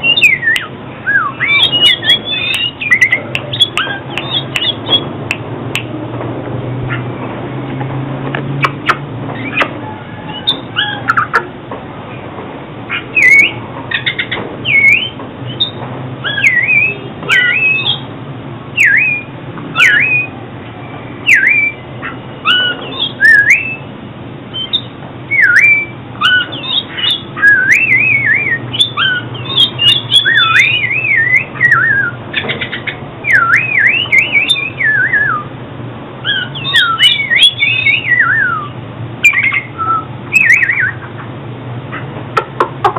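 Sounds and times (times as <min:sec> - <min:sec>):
bird singing whistled notes: 0:00.0 - 0:05.1, 0:12.9 - 0:18.1, 0:18.8 - 0:23.9, 0:24.5 - 0:35.5, 0:36.2 - 0:41.1.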